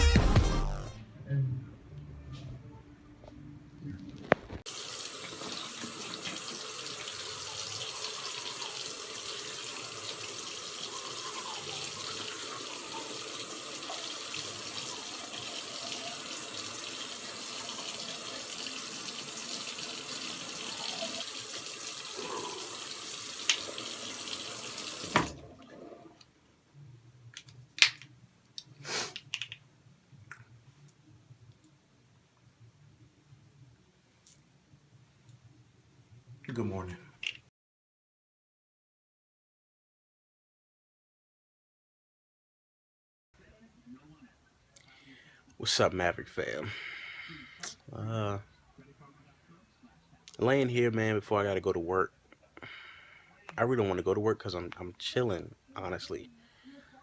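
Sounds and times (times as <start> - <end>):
water running: 4.2 - 26.3.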